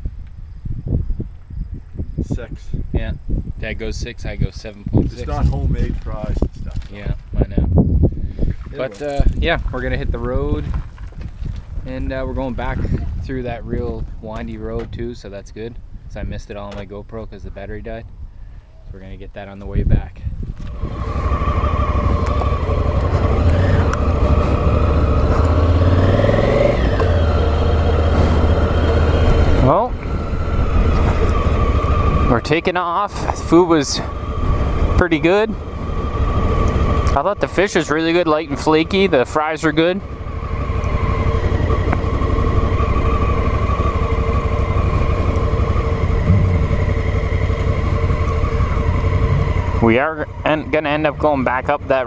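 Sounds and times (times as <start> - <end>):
motorcycle engine running: 20.5 - 52.0.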